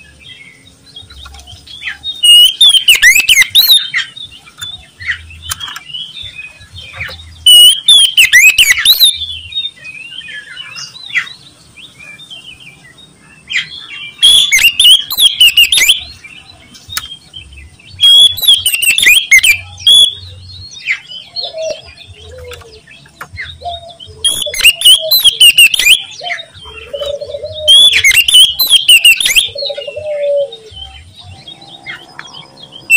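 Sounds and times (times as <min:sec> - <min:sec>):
bird singing varied phrases: 0:00.0 - 0:32.9
soft bird chirps: 0:00.0 - 0:32.9.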